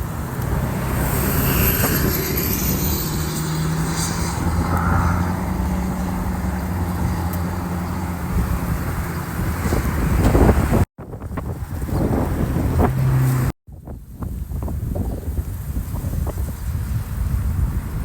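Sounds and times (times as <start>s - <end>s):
vehicle engine running: 0.0s - 13.5s.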